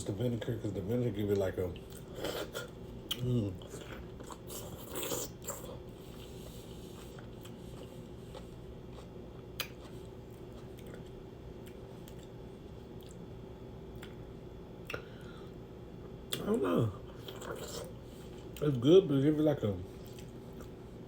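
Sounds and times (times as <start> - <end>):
wet chewing: 20.0 - 20.8.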